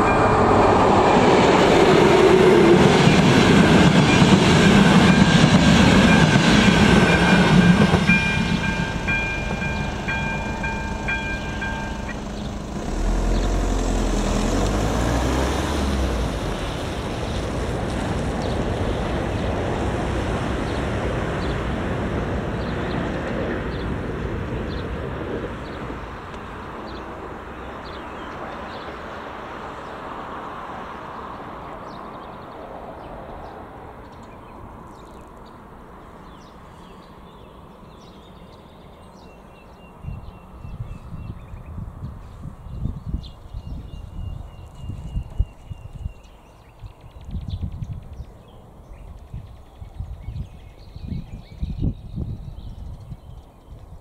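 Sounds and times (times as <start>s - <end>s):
electronic crossing warning bell: 0.0s - 1.6s, 3.7s - 12.9s
low rumble: 0.0s - 3.0s, 6.7s - 22.1s
train wheels clattering: 0.1s - 13.2s.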